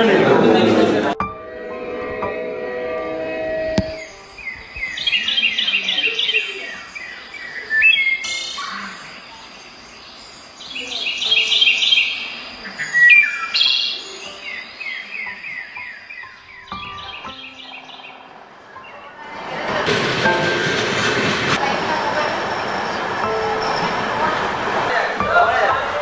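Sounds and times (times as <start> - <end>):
birds chirping: 3.8 - 19.5.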